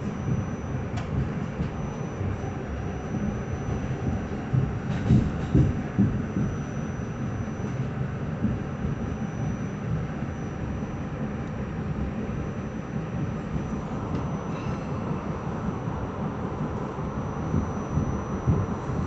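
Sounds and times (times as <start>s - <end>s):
train wheels rumbling on rails: 0.0s - 10.3s
high steady whine: 0.0s - 19.0s.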